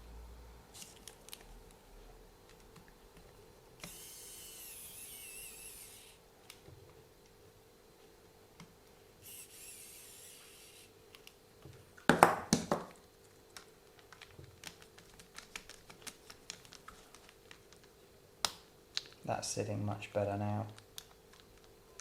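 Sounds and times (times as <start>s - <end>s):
faint high whir: 3.8s - 6.3s, 9.2s - 11.0s.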